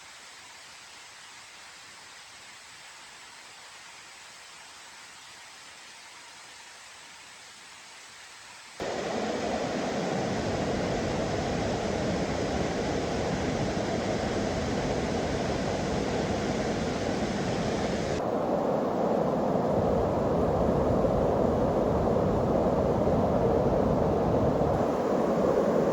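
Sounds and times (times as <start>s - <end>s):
rushing water: 8.8s - 25.9s.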